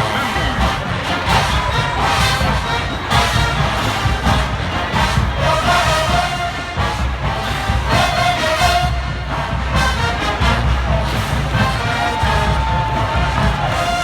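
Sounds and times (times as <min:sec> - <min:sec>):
heavy drums: 0:00.0 - 0:14.0
marching band brass music: 0:00.0 - 0:14.0
sustained horn notes: 0:00.0 - 0:14.0.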